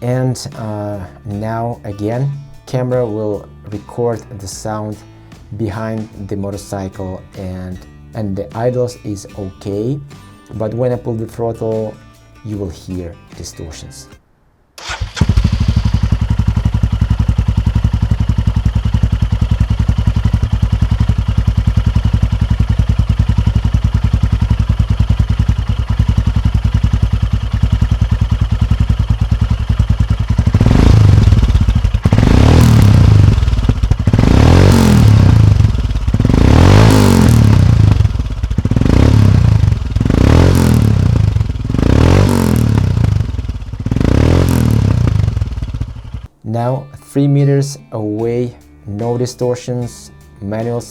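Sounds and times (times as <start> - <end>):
motorcycle engine idling and revving: 14.8 - 46.3.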